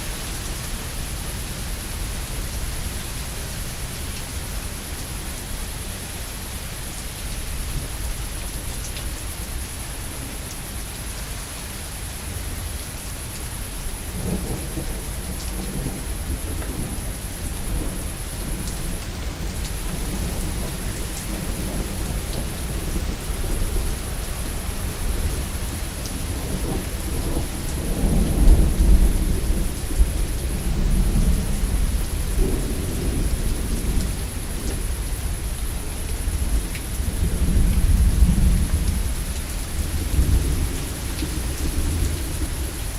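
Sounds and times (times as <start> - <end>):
heavy rain: 0.0 - 42.9
rolling thunder: 14.1 - 42.9.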